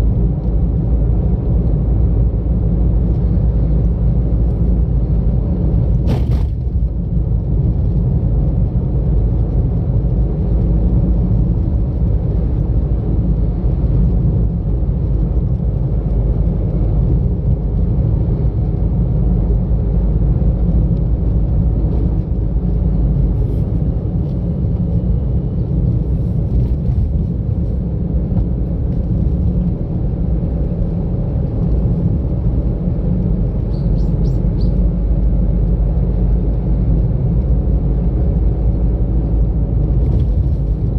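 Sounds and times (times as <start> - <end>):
car engine and road noise: 0.0 - 40.9.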